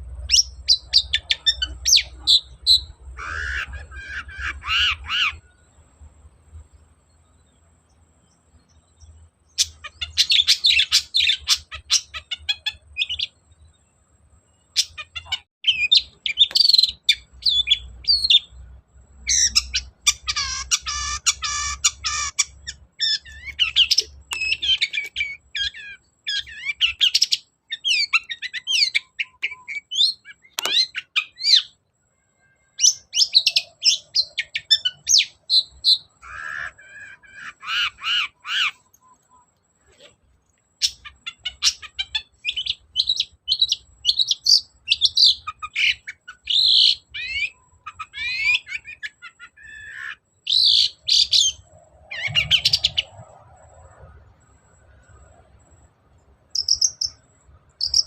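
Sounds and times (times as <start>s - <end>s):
shrike chattering song: 14.6s - 31.8s, 40.8s - 55.8s, 56.5s - 58.0s.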